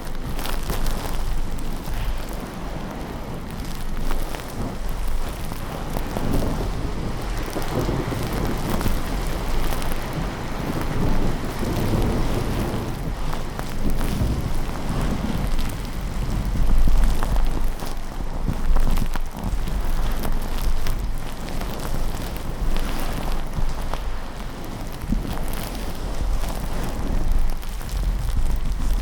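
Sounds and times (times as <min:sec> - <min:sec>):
rolling thunder rumbles: 0:00.0 - 0:18.8
steady rain: 0:00.0 - 0:29.0.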